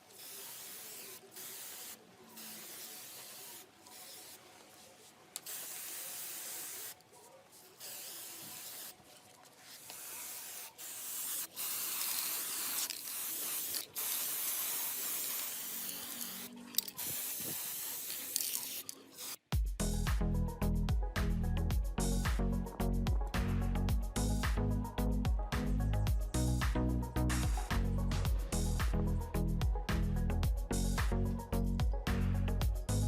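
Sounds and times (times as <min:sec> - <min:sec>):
spray paint hissing: 0:00.0 - 0:07.0, 0:07.6 - 0:19.5.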